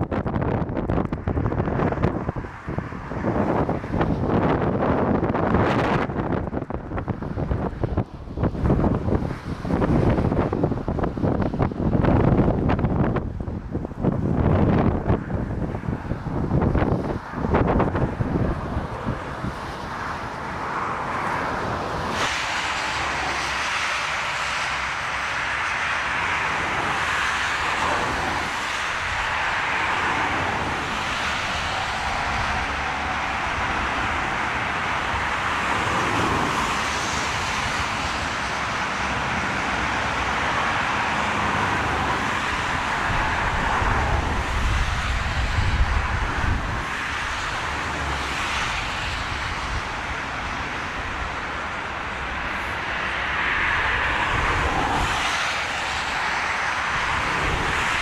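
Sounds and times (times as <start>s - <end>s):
jet engine hiss: 21.9s - 26.6s.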